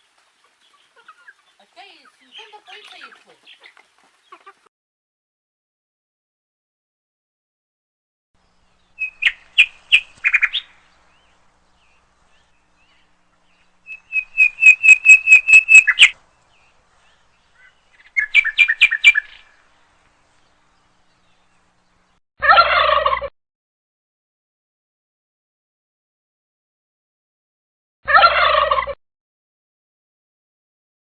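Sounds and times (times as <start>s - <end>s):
bird chirping: 8.4s - 22.2s.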